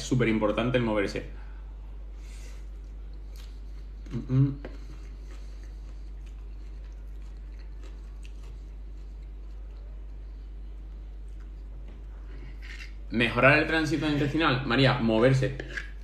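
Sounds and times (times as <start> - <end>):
steady low hum: 0.0 - 16.0
man chewing: 2.2 - 13.1.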